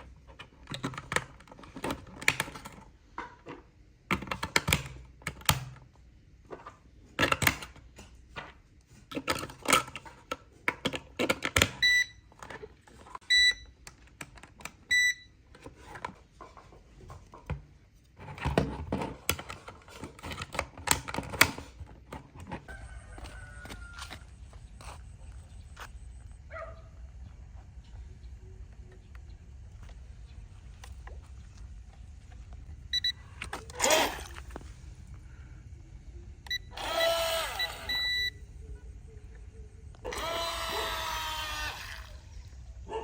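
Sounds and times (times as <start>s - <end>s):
short electronic beeps: 32.9s - 33.2s, 37.5s - 38.4s.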